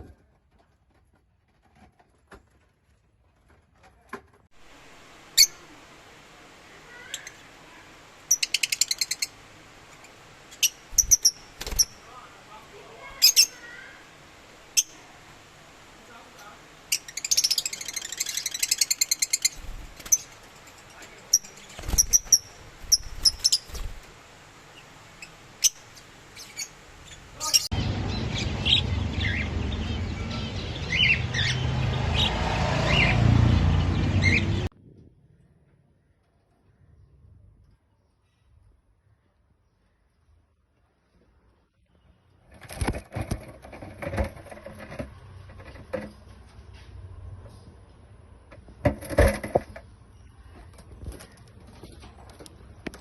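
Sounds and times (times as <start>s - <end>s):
bird high chirp: 5.4s - 5.7s, 8.3s - 12.2s, 13.0s - 14.0s, 16.9s - 24.0s, 24.8s - 34.7s.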